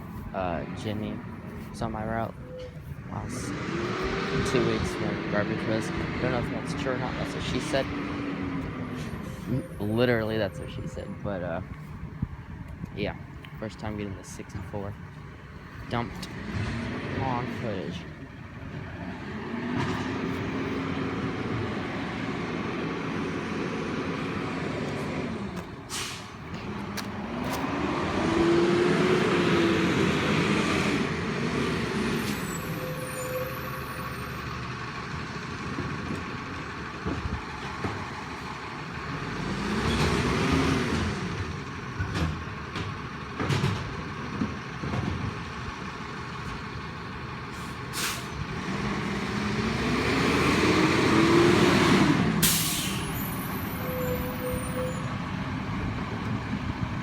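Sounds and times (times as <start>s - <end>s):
diesel engine revving: 0.0s - 57.0s
air brake hiss: 25.9s - 26.4s, 47.6s - 48.3s, 52.4s - 53.4s.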